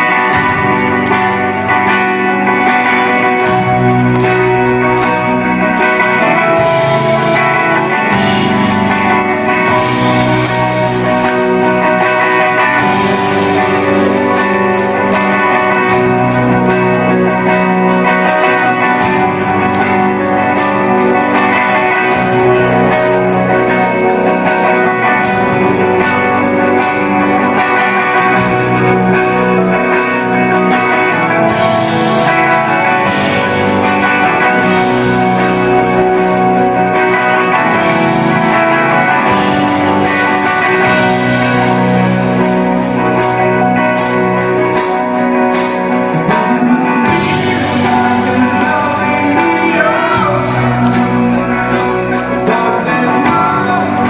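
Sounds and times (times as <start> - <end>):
live rock band playing: 0.0 - 54.0
strummed guitars: 0.0 - 54.0.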